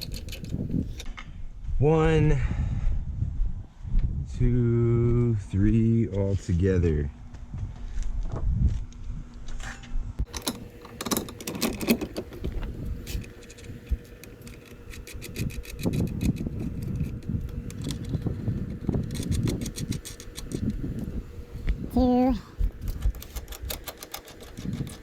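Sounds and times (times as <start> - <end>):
metal clinking and rattling: 0.0 - 1.0, 10.3 - 20.7.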